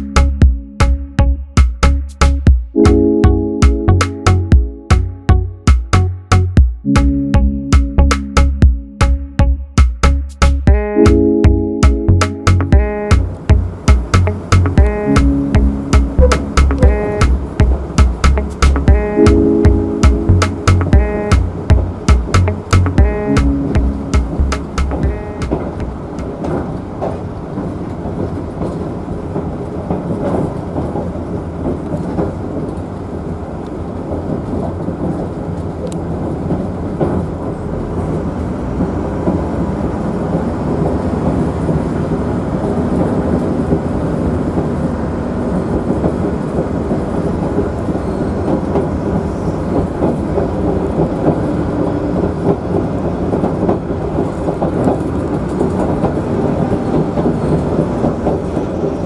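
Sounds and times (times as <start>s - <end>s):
diesel railcar rumbling on rails: 13.0s - 23.0s, 23.8s - 59.0s
wheel clicks on rail: 39.2s - 59.0s.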